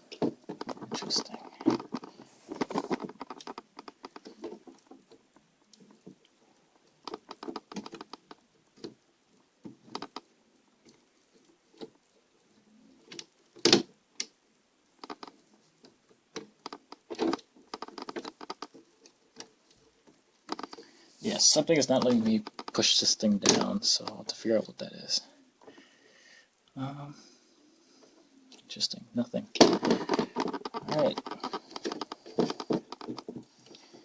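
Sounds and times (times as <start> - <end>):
plastic laptop parts clicking: 16.5 - 19.4, 22.0 - 22.8, 29.6 - 33.9.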